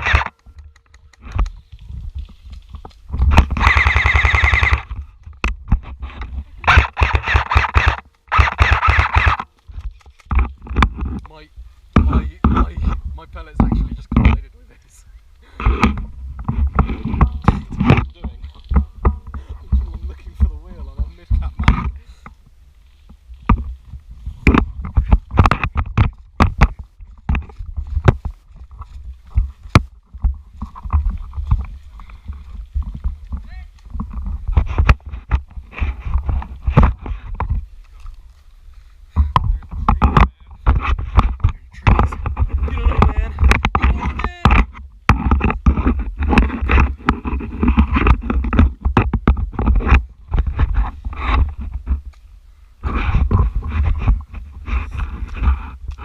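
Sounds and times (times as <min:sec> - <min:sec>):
wind rumble on microphone: 0:00.0 - 0:07.3, 0:08.4 - 0:56.0
sharp clicks and knocks: 0:00.0 - 0:14.5, 0:23.4 - 0:38.0, 0:39.2 - 0:52.2.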